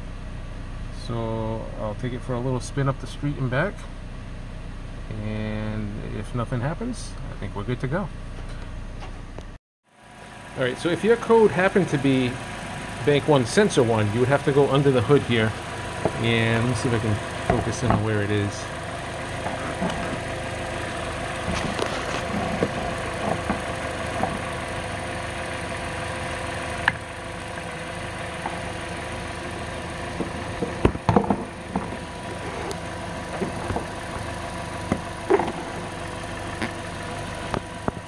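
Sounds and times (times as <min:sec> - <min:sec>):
car engine idling: 0:00.0 - 0:38.0
sharp knocks: 0:30.2 - 0:32.4.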